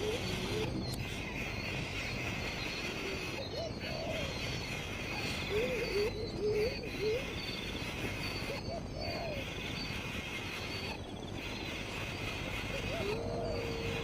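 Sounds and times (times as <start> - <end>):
rising and falling animal calls: 12.6 - 14.0.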